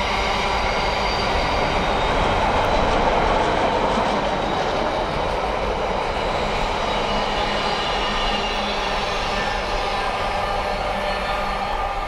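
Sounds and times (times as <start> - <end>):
train wheels rushing on rails: 0.0 - 12.0.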